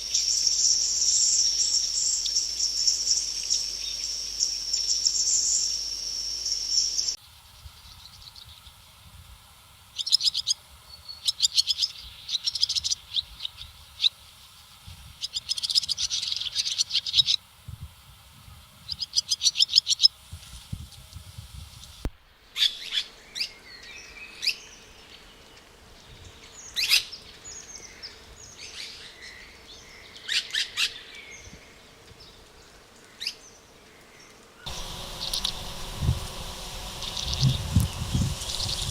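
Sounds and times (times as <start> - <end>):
high insect buzz: 0.0 - 7.2, 34.7 - 38.9
faint steady hum: 34.6 - 38.9
birds calling: 34.7 - 38.9
rapid chirping trills: 34.7 - 38.9.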